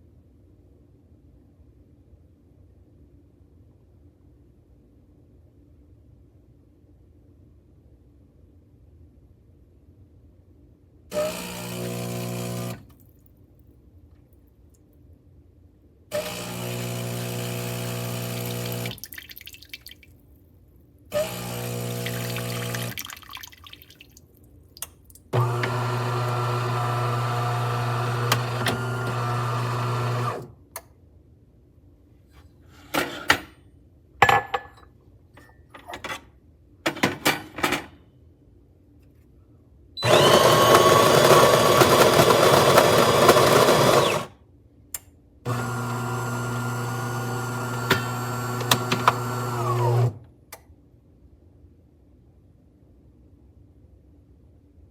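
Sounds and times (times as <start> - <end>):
espresso machine pump humming: 11.1 - 12.8, 16.2 - 19.0, 21.1 - 23.0, 25.4 - 30.4, 40.0 - 44.3, 45.5 - 50.2.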